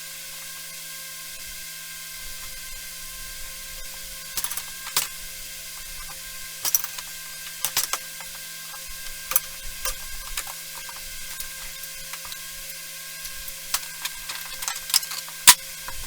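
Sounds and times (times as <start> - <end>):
steady hum: 3.1 - 16.0
sharp mechanical clicks: 6.0 - 16.0.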